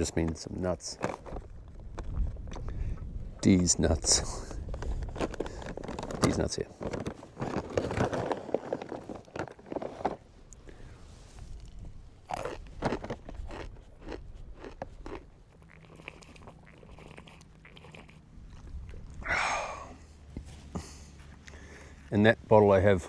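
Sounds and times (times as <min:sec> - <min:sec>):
person chewing crunchy nuts: 0:11.4 - 0:22.1.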